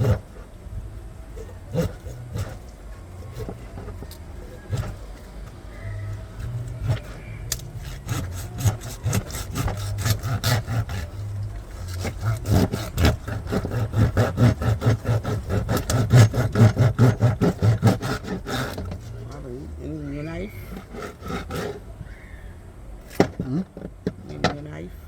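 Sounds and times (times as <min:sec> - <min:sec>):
steady low hum: 0:00.0 - 0:25.0
knife rasping on fish: 0:01.4 - 0:05.2, 0:05.8 - 0:19.3.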